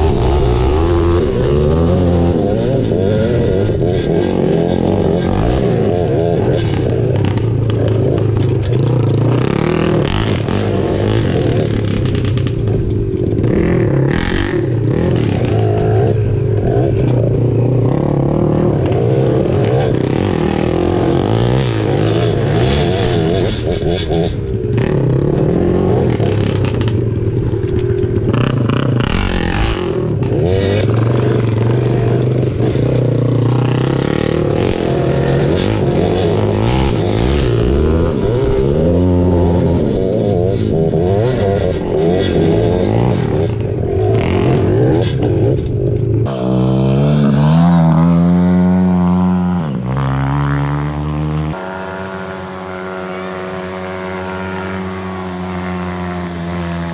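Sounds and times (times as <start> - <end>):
engine running hard: 0.0 - 56.9
scraping and clattering: 30.2 - 37.8.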